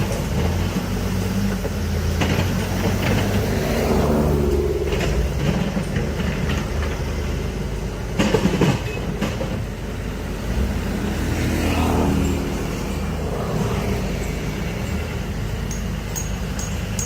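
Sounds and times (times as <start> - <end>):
heavy diesel machinery running: 0.0 - 17.0
sharp metallic clanks: 14.2 - 17.0.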